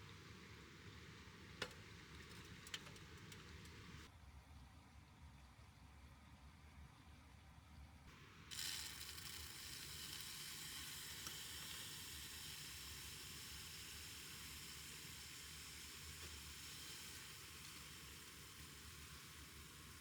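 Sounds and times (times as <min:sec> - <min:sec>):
faint steady hiss: 0:00.0 - 0:04.1, 0:08.1 - 0:20.0.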